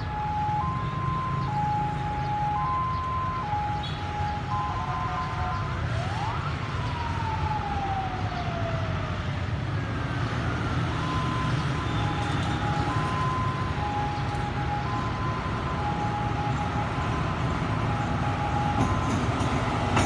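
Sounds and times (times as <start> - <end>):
two-tone level crossing alarm: 0.0 - 5.7, 11.0 - 20.0
diesel locomotive engine rumble: 11.0 - 20.0.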